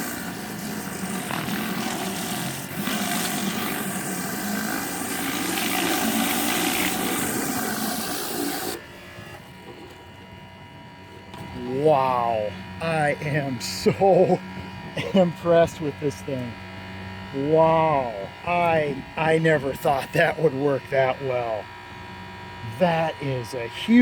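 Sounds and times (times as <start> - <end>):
pressure washer spray hissing: 0.0 - 8.8
low hum: 3.6 - 24.0.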